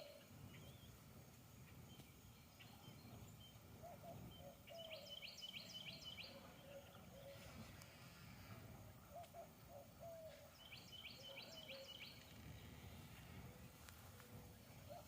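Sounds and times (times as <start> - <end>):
faint bird chirps: 0.0 - 15.0
short low bird calls: 1.6 - 15.0
low steady background rumble: 11.9 - 15.0.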